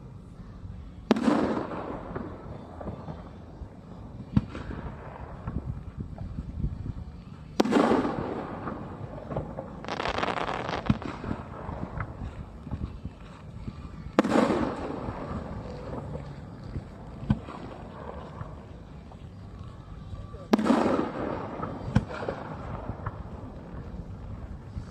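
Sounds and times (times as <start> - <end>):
fireworks booming with echo: 1.0 - 6.5, 7.5 - 13.2, 14.1 - 19.3, 20.3 - 24.8
fireworks crackling: 7.6 - 19.6, 20.2 - 24.9.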